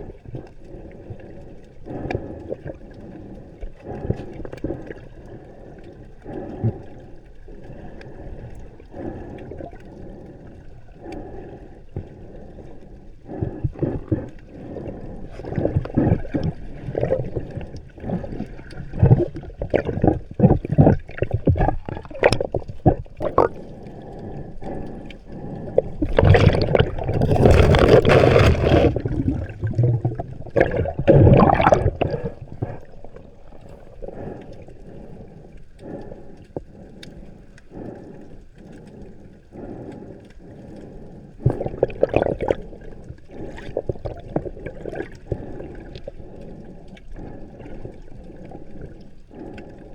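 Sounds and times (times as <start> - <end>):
water gurgling underwater: 12.3 - 36.8, 41.4 - 49.9
rush of bubbles: 13.4 - 23.7, 25.6 - 34.6, 41.4 - 46.0
underwater knocks: 26.0 - 32.8.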